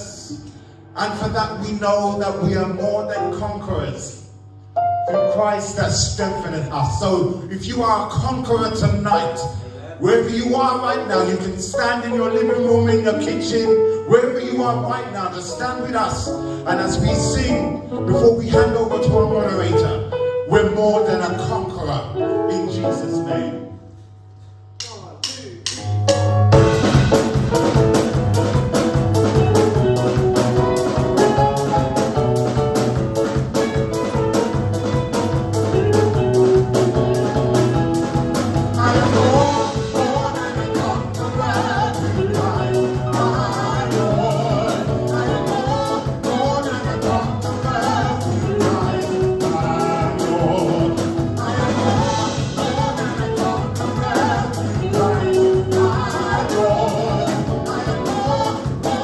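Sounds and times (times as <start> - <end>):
live band playing upbeat song: 25.6 - 59.0
people singing: 35.8 - 59.0.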